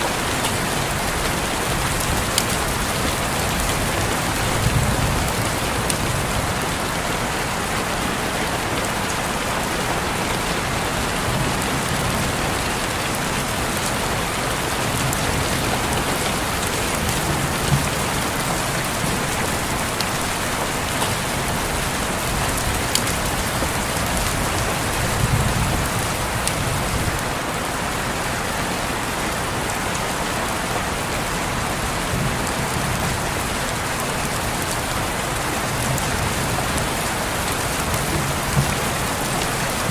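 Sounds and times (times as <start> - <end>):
rain on a window: 0.0 - 39.9.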